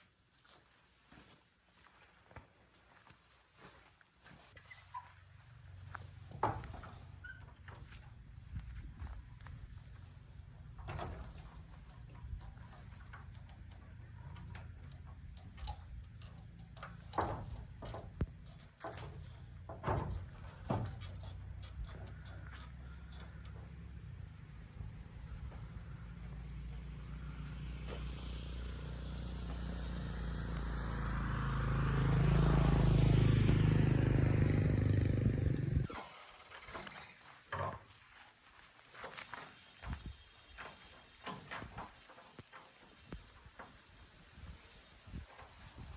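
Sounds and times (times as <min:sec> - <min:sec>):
motorcycle engine running: 0:23.1 - 0:35.9.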